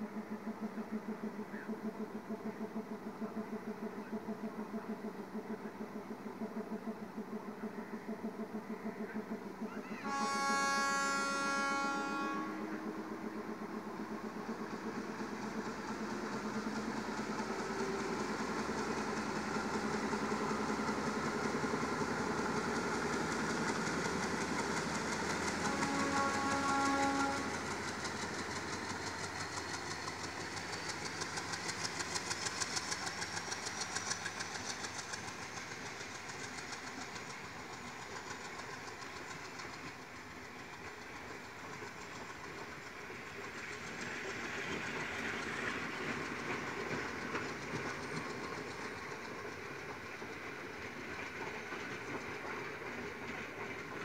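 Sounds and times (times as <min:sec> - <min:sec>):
diesel locomotive engine under load: 0:00.0 - 0:54.0
wheels clacking over rail joints: 0:12.1 - 0:54.0.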